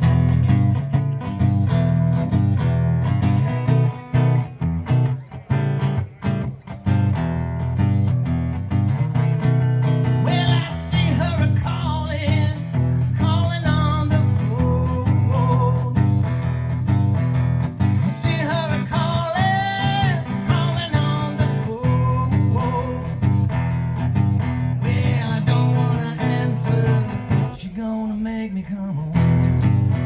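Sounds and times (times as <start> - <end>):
acoustic guitar strumming: 0.0 - 30.0
bass line: 0.0 - 30.0
person singing: 10.1 - 17.1, 17.9 - 23.8, 24.4 - 30.0.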